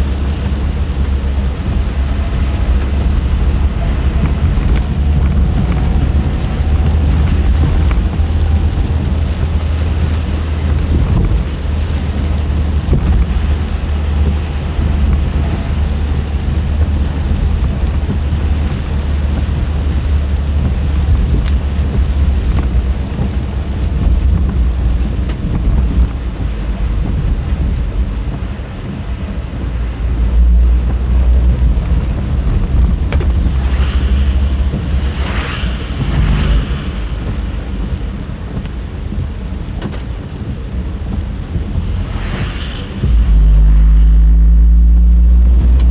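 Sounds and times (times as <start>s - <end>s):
car road and engine rumble: 0.0s - 45.9s
rain and wind hiss: 0.0s - 45.9s
hissing rush: 41.0s - 44.2s.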